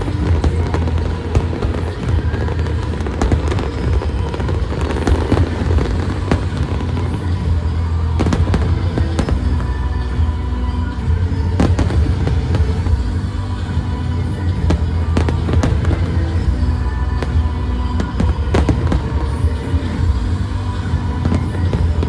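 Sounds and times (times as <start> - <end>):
fireworks bangs and crackles: 0.0 - 22.0
loud music: 0.0 - 22.0.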